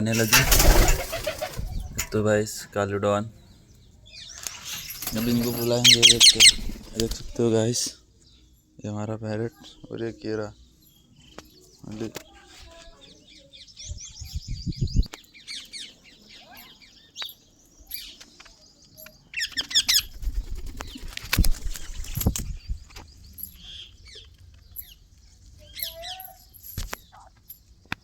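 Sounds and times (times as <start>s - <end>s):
wings flapping: 0.0s - 2.2s, 4.4s - 7.4s, 19.5s - 23.0s
parrots chirping: 4.2s - 7.4s.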